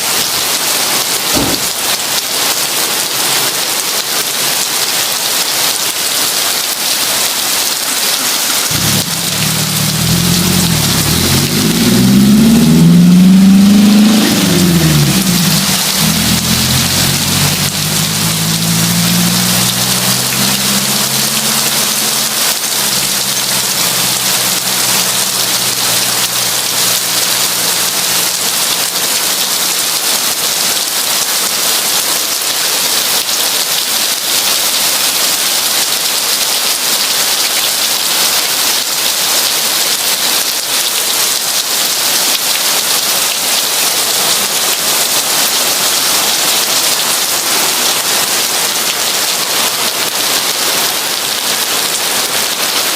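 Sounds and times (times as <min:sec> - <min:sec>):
heavy rain pouring: 0:00.0 - 0:52.9
low engine hum: 0:08.7 - 0:28.0.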